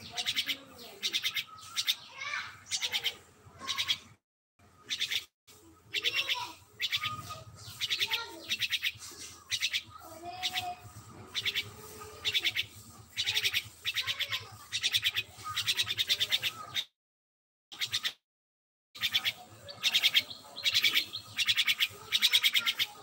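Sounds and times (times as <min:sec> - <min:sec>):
fainter lower bird calls: 0:00.0 - 0:04.1, 0:04.7 - 0:16.9, 0:17.7 - 0:18.2, 0:19.0 - 0:23.0
bird chirping rapidly: 0:00.0 - 0:16.9, 0:17.7 - 0:18.2, 0:19.0 - 0:23.0.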